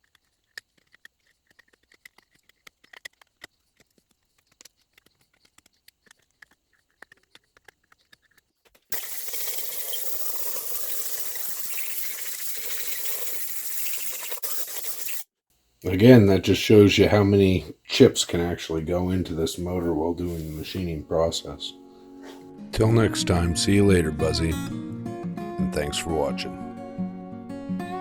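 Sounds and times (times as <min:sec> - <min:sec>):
air blow gun hissing: 0:08.9 - 0:15.2.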